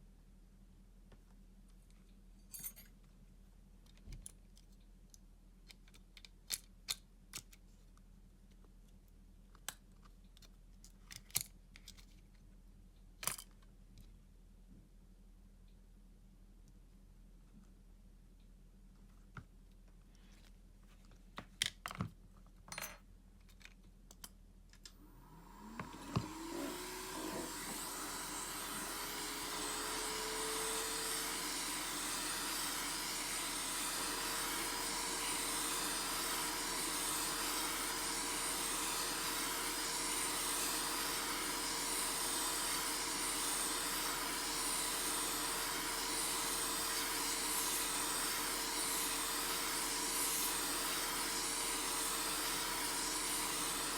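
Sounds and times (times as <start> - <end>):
heat gun blowing air: 25.1 - 53.9.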